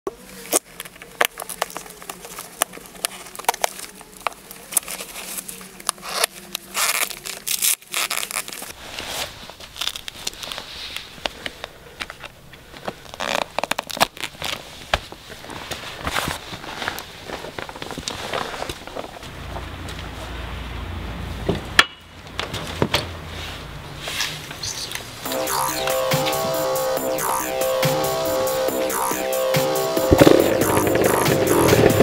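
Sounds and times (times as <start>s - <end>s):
crackling handling noises: 0.1s - 20.2s.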